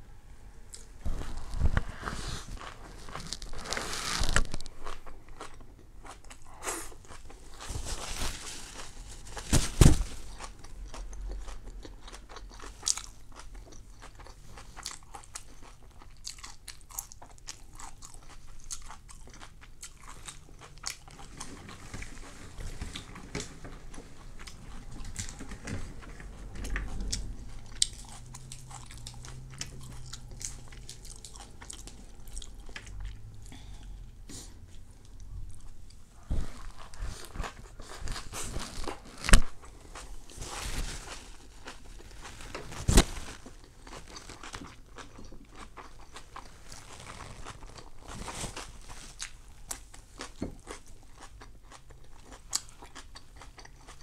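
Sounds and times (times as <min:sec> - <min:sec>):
crunchy chewing: 0:10.2 - 0:33.6, 0:35.0 - 0:54.0.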